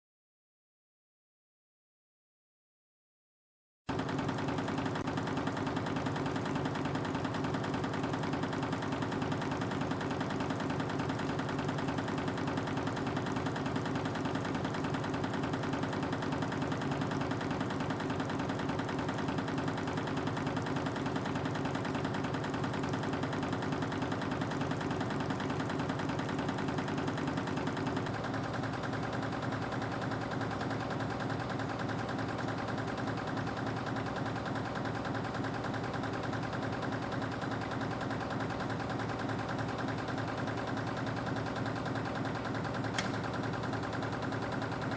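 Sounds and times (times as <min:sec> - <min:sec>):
rapid mechanical clatter: 0:03.9 - 0:44.9.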